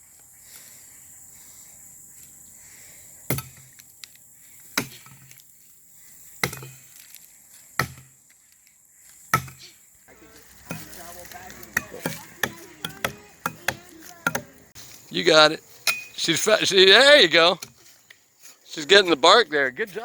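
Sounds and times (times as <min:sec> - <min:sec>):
tools chopping into log: 0:03.3 - 0:03.7, 0:04.8 - 0:05.3, 0:06.4 - 0:06.8, 0:07.8 - 0:08.2, 0:09.3 - 0:09.6, 0:10.6 - 0:14.6.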